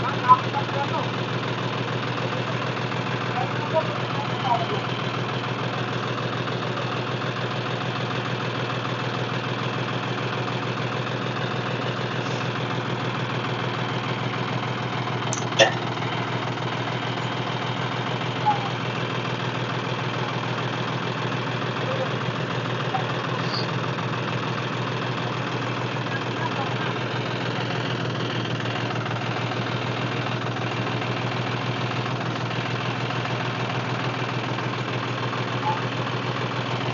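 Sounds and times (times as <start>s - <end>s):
tractor diesel engine idling: 0.0s - 36.9s.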